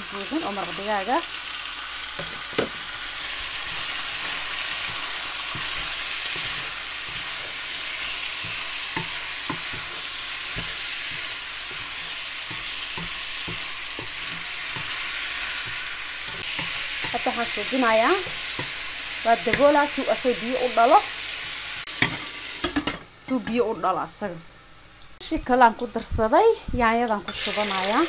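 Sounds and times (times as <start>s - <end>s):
chicken and onion sizzling in a pan: 0.0s - 28.0s
wooden spoon knocking on a pan: 4.8s - 7.4s, 8.4s - 15.0s.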